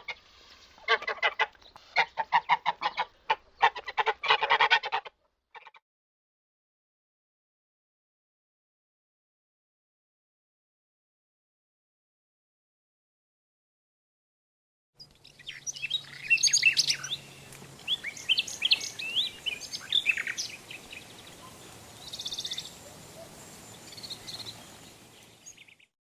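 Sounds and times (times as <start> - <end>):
birds chirping and trilling: 15.0 - 25.9.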